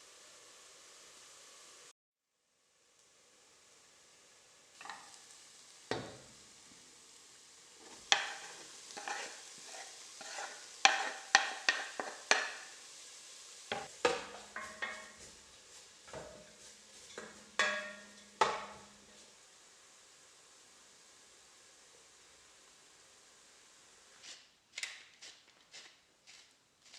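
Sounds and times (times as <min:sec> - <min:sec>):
utensils clinking against dishes: 0:16.2 - 0:18.9.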